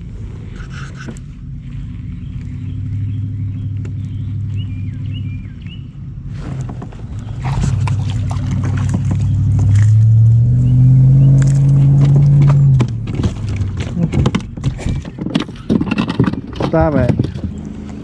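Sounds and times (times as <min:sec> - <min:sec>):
engine running: 0:00.0 - 0:18.0
clicks and knocks: 0:11.3 - 0:18.0.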